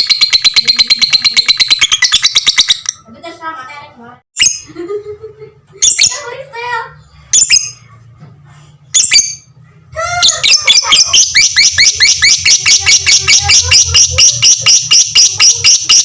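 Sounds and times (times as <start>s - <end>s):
lovebird chattering chirps: 0.0s - 3.1s, 5.8s - 6.2s, 9.0s - 9.5s, 10.2s - 16.0s.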